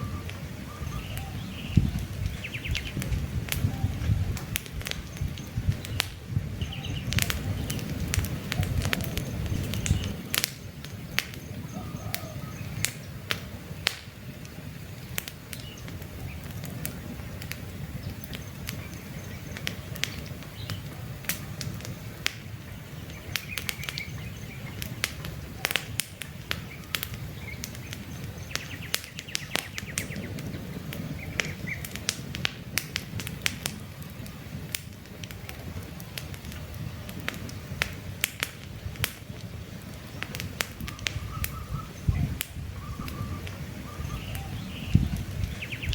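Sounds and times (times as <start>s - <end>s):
bird chirps: 0.0s - 3.0s, 5.0s - 7.9s, 22.7s - 25.8s, 26.6s - 31.9s, 40.8s - 45.9s
campfire crackling: 0.0s - 45.9s.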